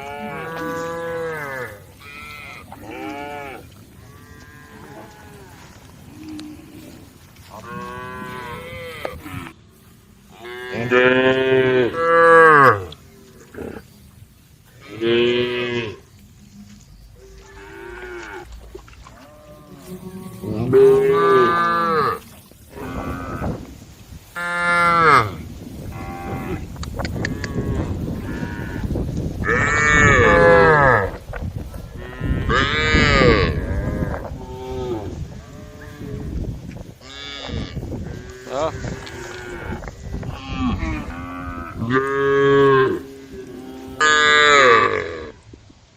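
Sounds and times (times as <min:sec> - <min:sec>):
cows mooing: 0:00.0 - 0:09.6, 0:10.3 - 0:13.9, 0:14.8 - 0:16.0, 0:16.6 - 0:23.7, 0:24.4 - 0:31.2, 0:31.9 - 0:45.4.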